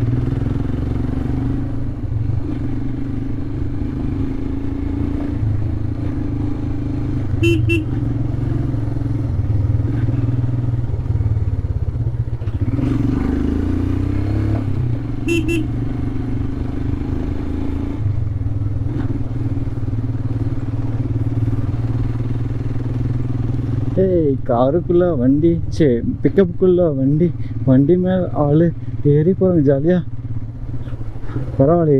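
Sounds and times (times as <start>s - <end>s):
motorcycle engine running: 0.0s - 31.9s
vehicle horn toots: 7.3s - 8.2s, 15.2s - 15.7s.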